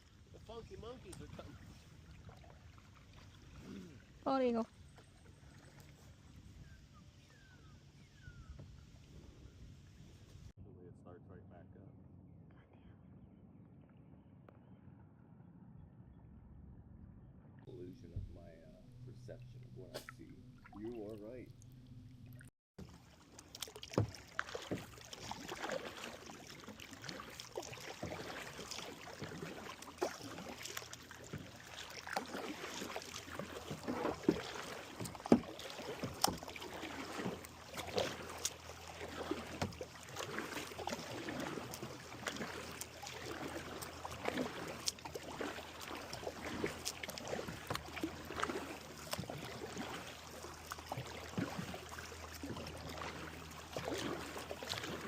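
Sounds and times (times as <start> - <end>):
paddle splashing in water: 0.0 - 10.5, 19.8 - 21.7, 22.3 - 55.0
water dripping off paddle: 22.8 - 55.0.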